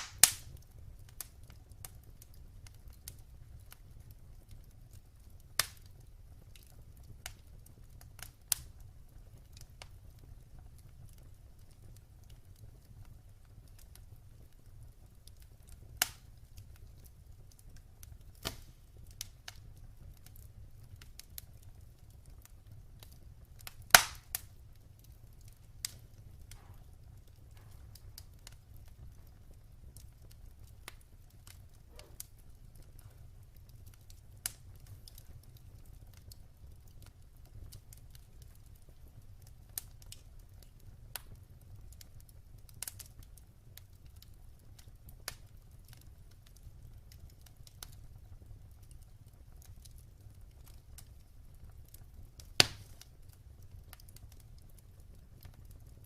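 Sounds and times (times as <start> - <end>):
fire low rumble: 0.0 - 56.0
wood fire crackling and popping: 0.0 - 56.0.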